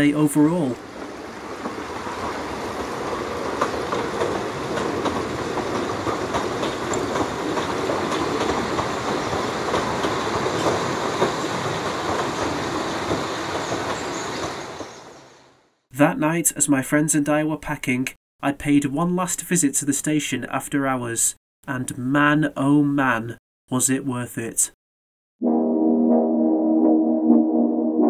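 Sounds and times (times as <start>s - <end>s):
train rumbling along track: 0.7s - 15.5s
wheels clattering on rail joints: 0.9s - 15.2s.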